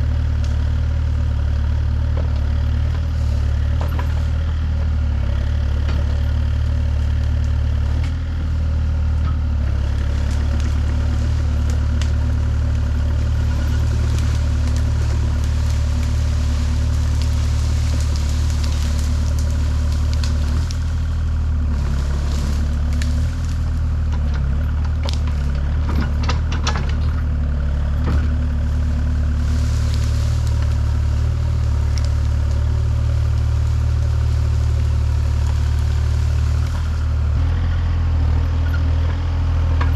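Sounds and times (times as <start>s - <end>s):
engine running steadily: 0.0s - 39.9s
sharp cracks and clatters: 10.2s - 23.8s.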